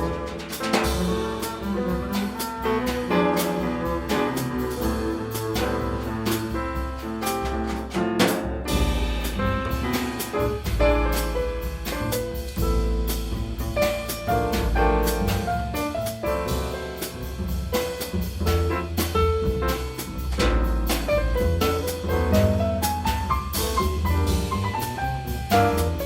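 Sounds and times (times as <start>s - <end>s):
drum kit: 0.0s - 26.0s
piano playing jazz: 0.0s - 26.0s
walking bass line: 8.7s - 26.0s.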